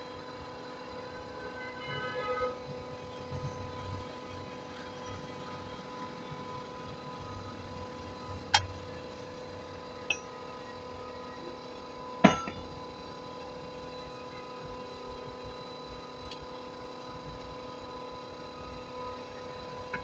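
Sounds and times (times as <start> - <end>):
steady machine hum: 0.0 - 20.0
metal clanks: 12.2 - 12.7.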